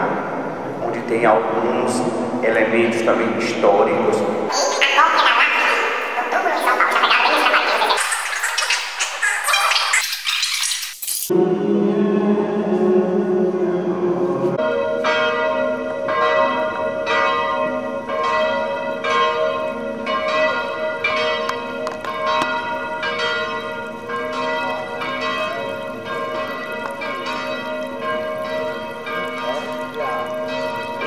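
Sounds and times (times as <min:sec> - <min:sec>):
church bells ringing: 0:00.0 - 0:08.0, 0:13.6 - 0:31.0
steady held tones: 0:20.7 - 0:31.0.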